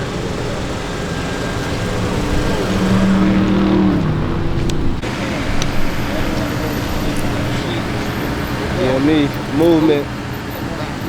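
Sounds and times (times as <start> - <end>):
vehicle engine running: 0.0 - 11.0
low rumble: 1.3 - 8.0.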